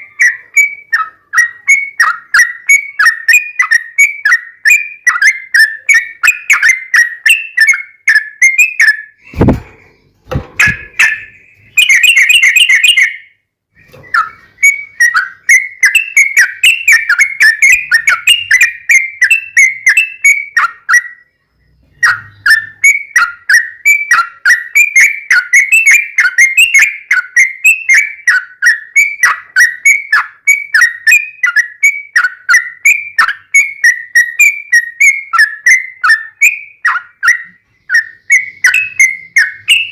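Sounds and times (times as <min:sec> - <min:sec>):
bird chattering song: 0:00.0 - 0:39.9
low thumps: 0:09.2 - 0:11.3.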